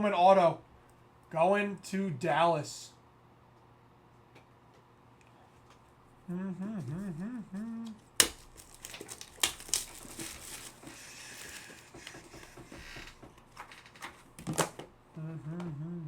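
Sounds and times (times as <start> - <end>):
wrappers crinkling and tearing: 8.2 - 12.4.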